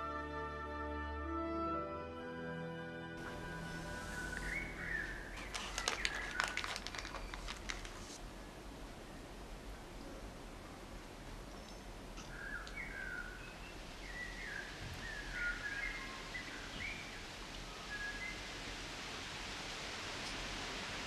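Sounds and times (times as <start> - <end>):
steady hiss: 3.2 - 21.0
faint bird chirps: 3.7 - 7.5, 11.6 - 18.5.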